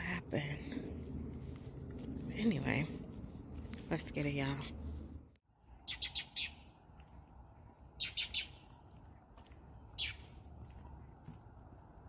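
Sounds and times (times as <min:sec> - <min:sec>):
small bird chirping: 0:05.8 - 0:06.8, 0:08.0 - 0:08.8, 0:09.9 - 0:10.4.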